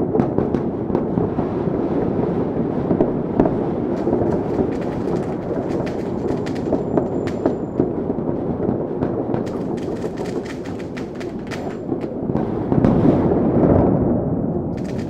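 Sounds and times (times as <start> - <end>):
fireworks bursting: 2.9 - 13.7, 14.8 - 15.0
sharp cracks and pops: 3.5 - 8.1, 9.4 - 12.4, 14.8 - 15.0.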